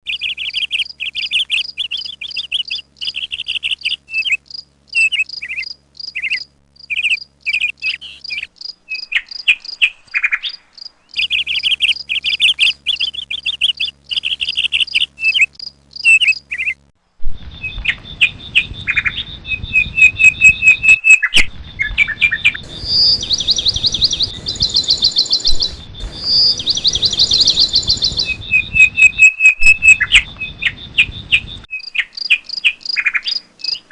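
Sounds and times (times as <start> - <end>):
small birds chirping: 0.0 - 33.9
background hiss: 0.1 - 33.9
steady high buzz: 0.1 - 33.9
fast chattering trills: 22.6 - 29.2.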